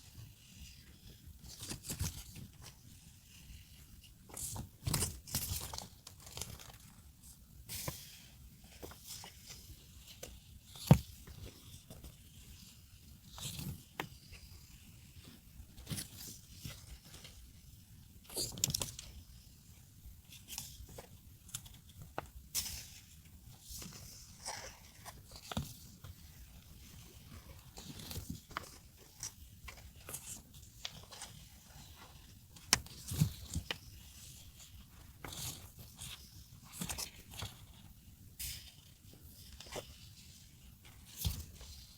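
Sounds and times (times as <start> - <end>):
paper rustling and crinkling: 4.3 - 7.0, 22.7 - 37.9.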